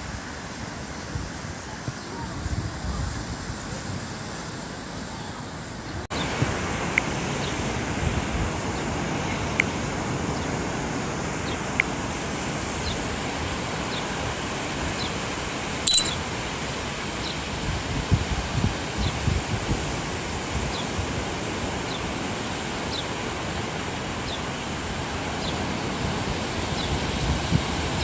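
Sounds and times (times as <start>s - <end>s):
ocean surf: 0.0s - 28.0s
wind noise: 0.0s - 28.0s
high-pitched chirp: 15.9s - 16.2s.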